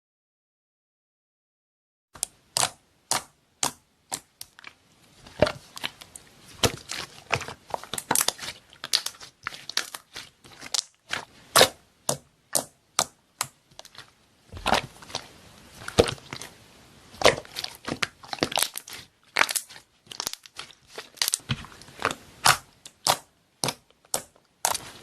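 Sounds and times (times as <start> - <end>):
slime crackling when squeezed: 5.7 - 10.9, 17.2 - 21.4.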